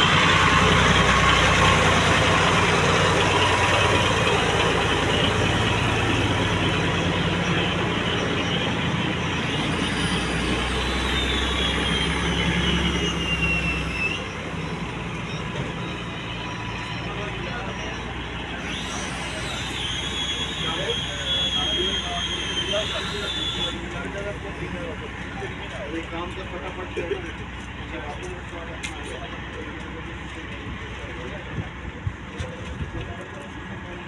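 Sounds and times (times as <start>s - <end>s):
faint high tone sliding down: 0.0s - 24.2s
vehicle engine running: 0.0s - 34.0s.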